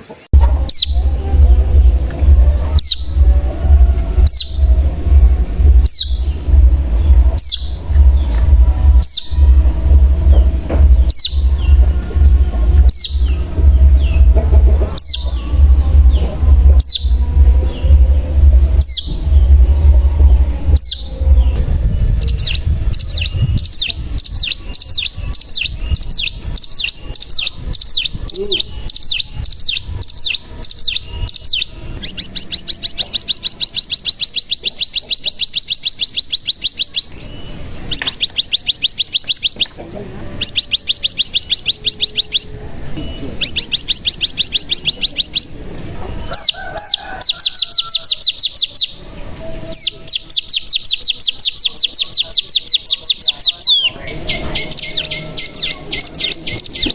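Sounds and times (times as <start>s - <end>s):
bird chirping sharply: 0.0s - 2.0s, 5.7s - 18.0s.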